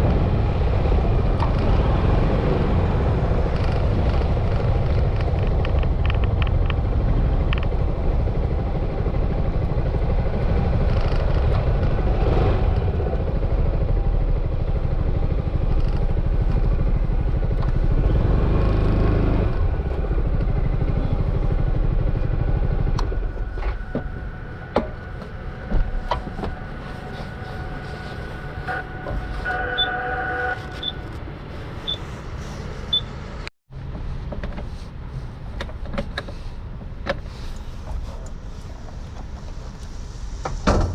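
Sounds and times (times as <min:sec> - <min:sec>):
scooter engine rumble: 0:00.0 - 0:34.7
short beeping tone: 0:28.7 - 0:31.0.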